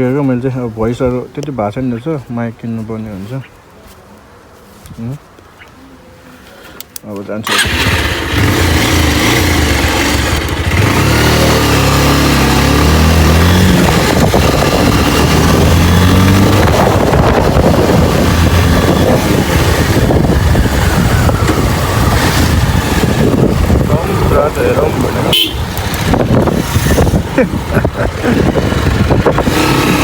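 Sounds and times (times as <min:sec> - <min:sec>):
motorcycle engine accelerating: 0:07.5 - 0:30.0.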